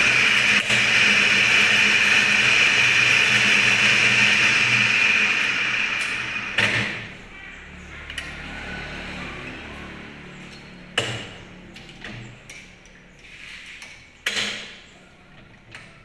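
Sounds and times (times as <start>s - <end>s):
hissing scrape of rubbing: 13.2s - 13.8s.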